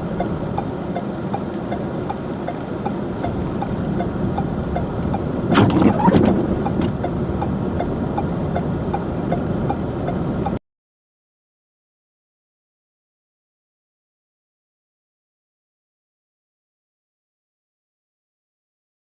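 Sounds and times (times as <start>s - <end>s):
light regular ticking: 0.0s - 5.4s, 6.6s - 10.6s
vehicle road and engine noise: 0.0s - 10.6s.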